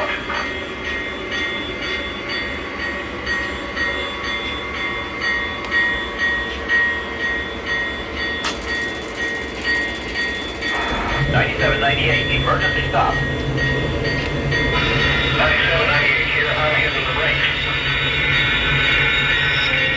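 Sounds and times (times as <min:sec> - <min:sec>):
model train rumbling: 0:08.4 - 0:19.9.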